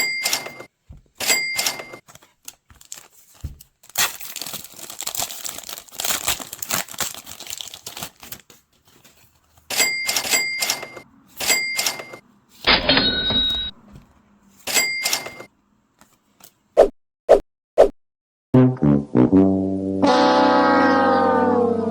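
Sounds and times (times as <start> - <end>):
foil wrapper tearing and crinkling: 2.4 - 9.2
bright ringing tone bursts: 12.8 - 13.8.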